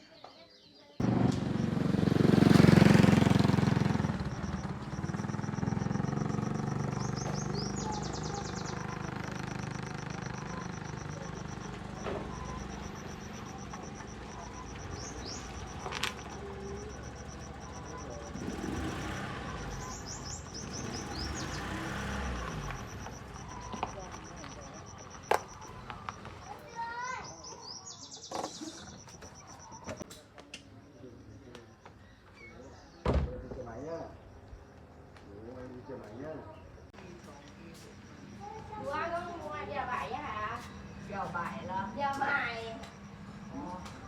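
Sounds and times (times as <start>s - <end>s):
bird chirping trills: 2.0s - 30.0s.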